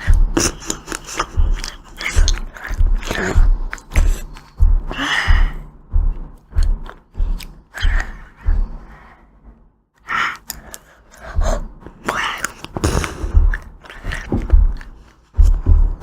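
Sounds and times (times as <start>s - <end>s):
eating ice cream: 0.0s - 5.1s, 12.0s - 15.7s
wet mouth sounds: 0.0s - 5.6s, 10.3s - 15.6s.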